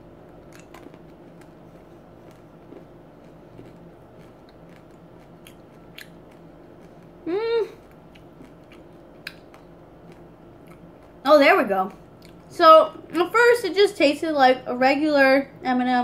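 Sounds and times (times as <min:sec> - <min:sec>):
crunchy candy chewing: 0:00.2 - 0:11.2
person humming: 0:07.2 - 0:07.8.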